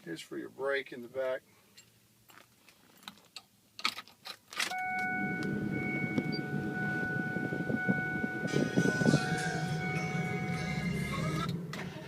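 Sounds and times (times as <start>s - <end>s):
diesel engine running: 4.8s - 12.0s.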